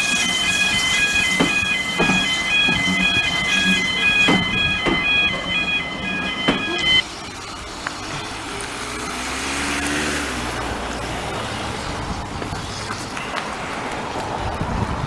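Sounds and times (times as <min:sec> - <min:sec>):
short repeated high tones: 0:00.0 - 0:07.6
low engine rumble: 0:00.0 - 0:09.6.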